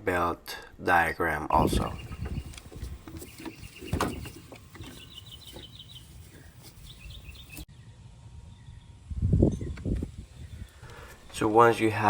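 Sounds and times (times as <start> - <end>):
bird chattering call: 3.2 - 7.7.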